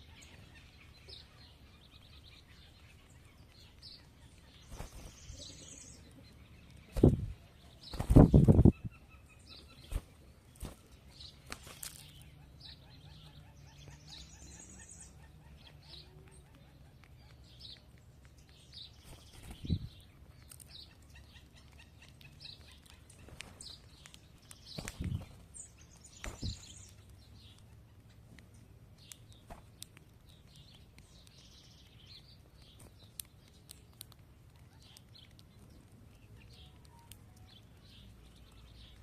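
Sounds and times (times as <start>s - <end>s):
small birds chirping: 0.0s - 39.0s
wings fluttering: 4.6s - 5.4s, 6.9s - 8.8s, 9.7s - 12.2s, 19.0s - 19.9s, 23.1s - 26.9s, 29.4s - 29.8s.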